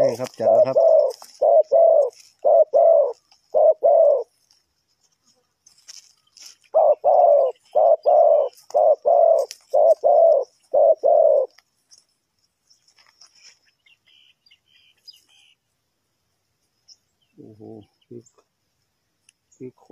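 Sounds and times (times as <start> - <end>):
dove cooing: 0.0 - 4.4, 6.4 - 11.6
small birds chirping: 0.0 - 19.9.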